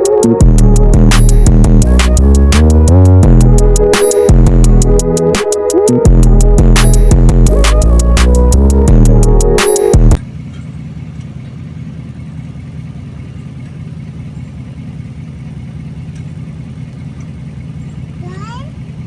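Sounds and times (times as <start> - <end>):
vehicle engine idling: 0.0 - 5.4, 6.1 - 19.0
loud electronic music: 0.0 - 10.2.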